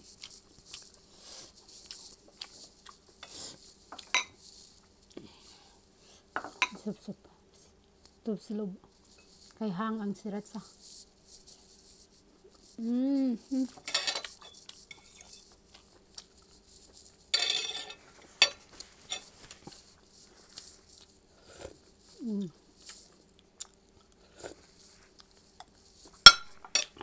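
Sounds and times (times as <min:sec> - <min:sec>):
person chewing and crunching food: 0:00.0 - 0:05.8, 0:13.7 - 0:27.0
rustling: 0:10.4 - 0:21.2
cutlery clicking on plate: 0:17.4 - 0:19.3.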